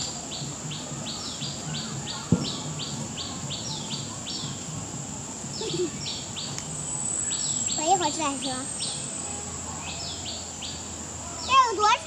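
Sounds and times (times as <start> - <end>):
birds chirping: 0.0 - 12.0
insect hiss: 0.0 - 12.0.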